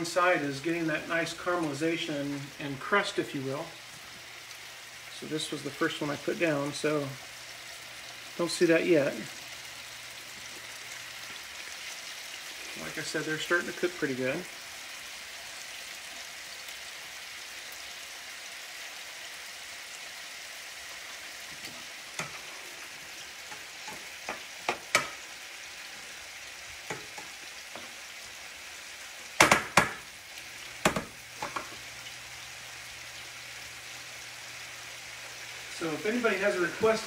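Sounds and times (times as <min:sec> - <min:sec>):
scallops sizzling in frying pan: 0:00.0 - 0:37.0
sharp clicks and knocks: 0:23.5 - 0:25.2, 0:30.8 - 0:31.7.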